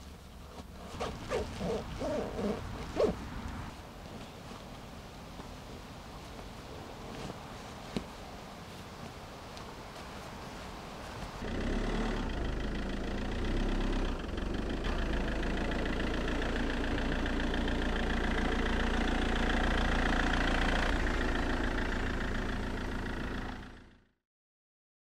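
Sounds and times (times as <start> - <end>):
car engine idling: 11.4 - 24.0.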